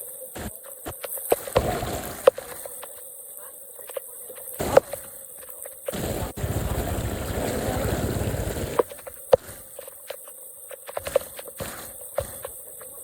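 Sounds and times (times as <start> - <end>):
rushing splashing water: 0.0 - 2.8.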